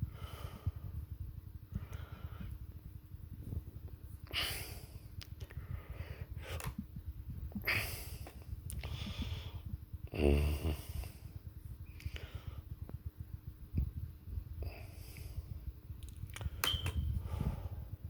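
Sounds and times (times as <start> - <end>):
person breathing heavily: 0.0 - 1.1, 1.8 - 2.7, 4.2 - 6.8, 7.5 - 12.8, 17.2 - 18.0.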